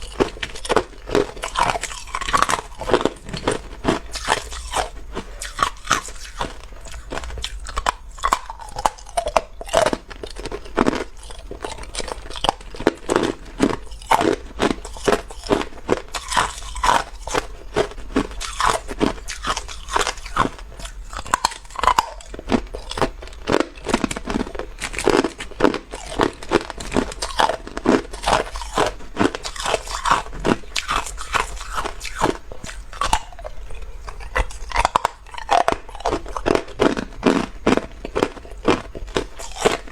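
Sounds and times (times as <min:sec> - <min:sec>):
ice cubes crunching: 0:00.0 - 0:39.9.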